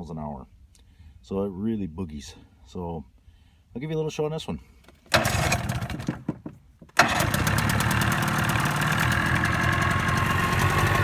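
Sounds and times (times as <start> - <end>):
outboard motor starting and running: 5.1 - 6.3, 7.0 - 11.0.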